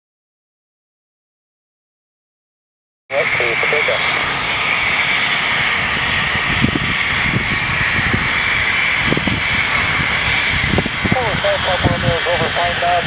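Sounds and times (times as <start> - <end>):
jet engines roaring with whine: 3.1 - 13.0.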